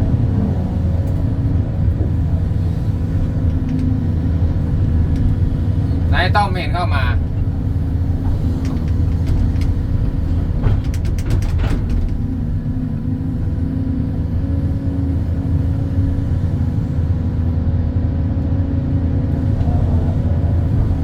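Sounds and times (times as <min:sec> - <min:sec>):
diesel engine running: 0:00.0 - 0:21.0
sharp metallic clicks and knocks: 0:08.2 - 0:12.3.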